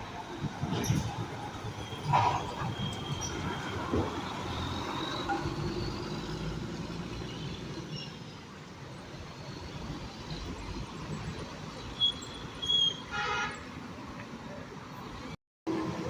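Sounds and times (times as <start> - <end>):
truck engine rumbling: 0.0 - 12.3
road noise: 0.0 - 16.0.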